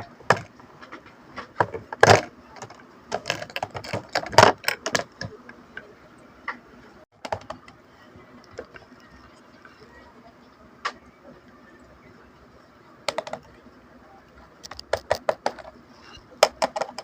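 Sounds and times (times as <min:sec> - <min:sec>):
small plastic parts clicking: 0:01.6 - 0:05.9, 0:13.1 - 0:13.5, 0:14.6 - 0:15.7.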